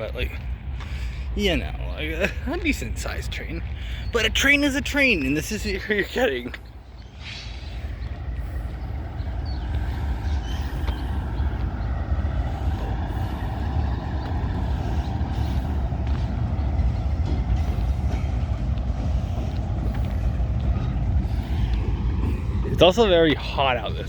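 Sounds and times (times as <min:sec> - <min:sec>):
freight train rumbling: 0:00.0 - 0:24.0.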